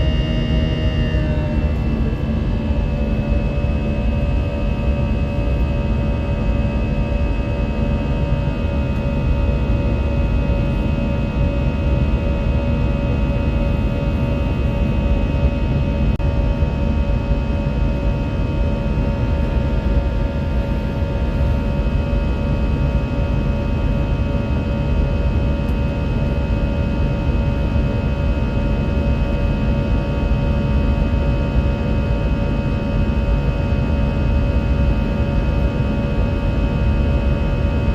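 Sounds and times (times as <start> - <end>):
deep rumble: 0.0 - 22.6
steady whining tones: 0.0 - 22.7
jet engines droning: 0.0 - 37.9.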